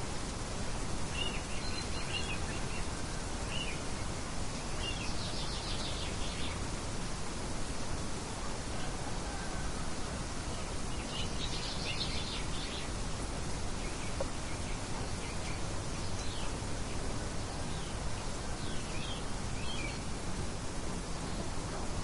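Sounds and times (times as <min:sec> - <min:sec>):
steady wind-like hiss: 0:00.0 - 0:22.0
small birds chirping: 0:01.0 - 0:06.8, 0:10.6 - 0:20.2.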